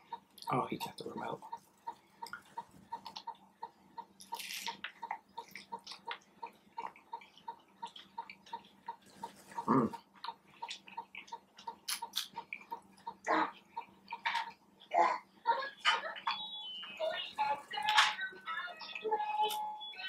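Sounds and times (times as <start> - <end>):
wet chewing and mouth sounds: 1.6 - 14.9
mouth smacks and clicks: 2.2 - 14.9.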